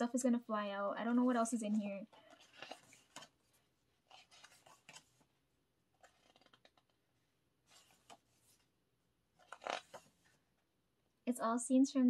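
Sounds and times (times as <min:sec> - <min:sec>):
paper rustling: 0:01.2 - 0:10.4.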